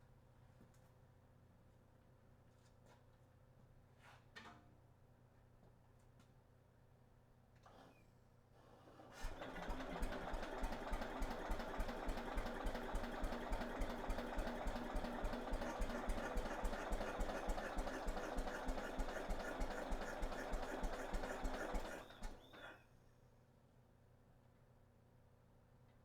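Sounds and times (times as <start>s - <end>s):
tractor engine starting and running: 9.2s - 22.8s.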